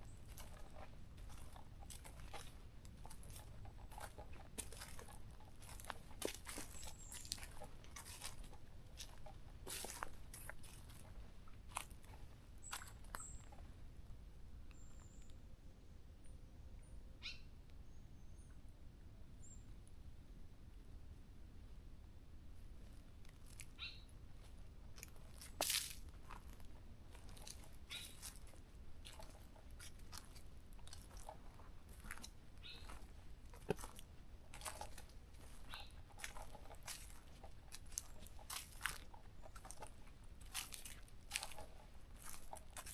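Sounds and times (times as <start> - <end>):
footsteps crunching on dry leaves: 0.1 - 13.4, 25.0 - 42.9
bird chirps: 17.2 - 18.6, 32.6 - 33.0.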